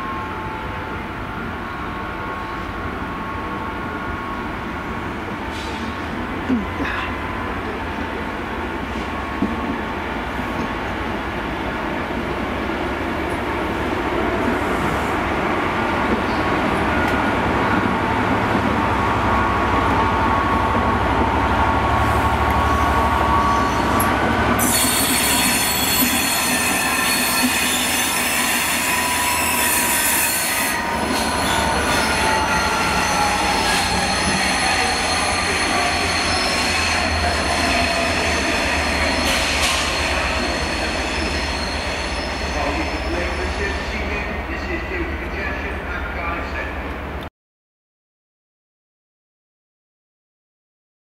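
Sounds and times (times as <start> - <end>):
passenger train passing: 0.0 - 47.3
train wheels squealing: 22.6 - 44.0.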